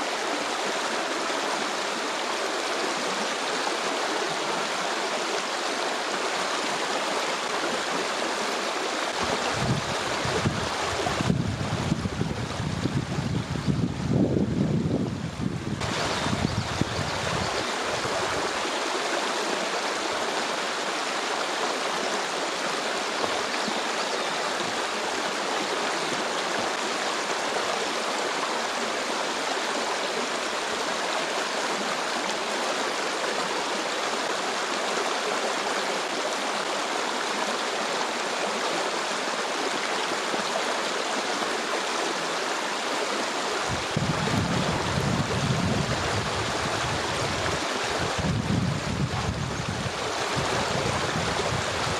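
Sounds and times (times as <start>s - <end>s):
water rushing over rocks: 0.0s - 51.9s
wind rumbling on microphone: 9.2s - 18.5s, 43.6s - 51.9s.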